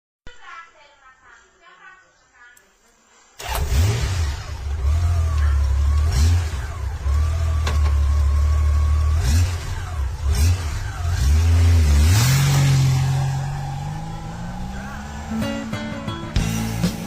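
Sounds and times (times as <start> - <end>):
motorcycle engine revving: 3.4 - 17.0.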